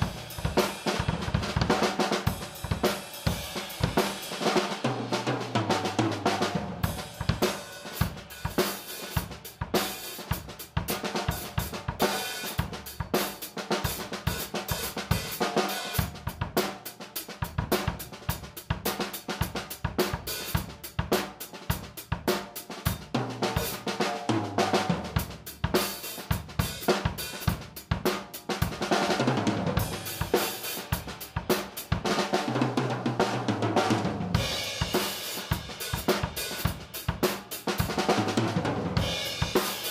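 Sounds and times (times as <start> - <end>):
bass drum: 0.0 - 4.2, 5.2 - 12.0, 28.6 - 32.1, 33.6 - 39.9
snare drum: 0.0 - 39.9.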